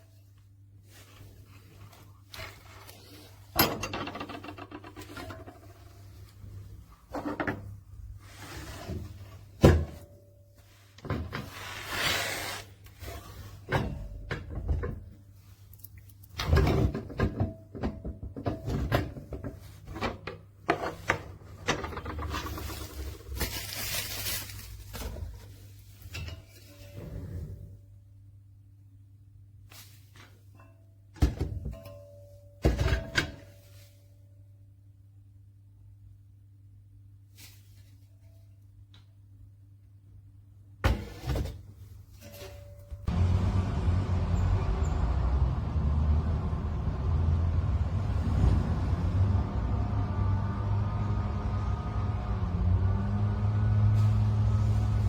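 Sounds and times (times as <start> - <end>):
handling knocks and scraping: 0.0 - 27.7, 40.8 - 43.6, 49.4 - 55.0.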